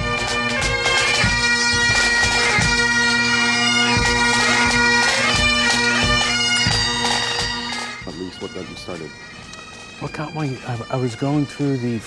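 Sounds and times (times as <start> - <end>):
bagpipes playing over drones: 0.0 - 12.0
low thuds: 0.6 - 10.0.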